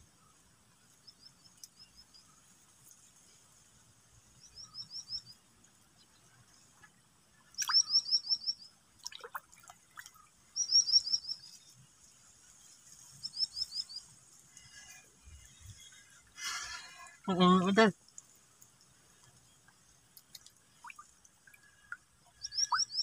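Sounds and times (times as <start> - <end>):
small bird singing: 4.4 - 5.4, 7.6 - 8.7, 10.6 - 11.7, 13.2 - 14.1, 22.4 - 23.0
faint clicks: 18.1 - 20.6.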